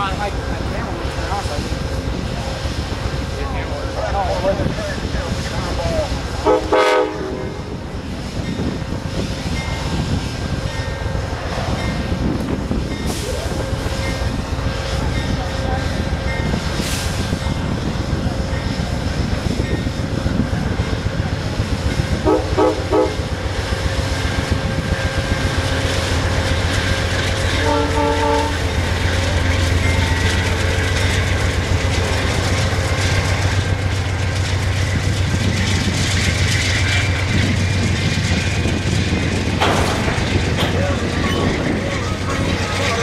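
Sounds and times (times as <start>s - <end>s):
locomotive drone: 0.0s - 43.0s
train wheels rolling: 0.0s - 43.0s
train horn short blasts: 6.4s - 7.6s, 22.2s - 23.3s, 27.5s - 28.7s.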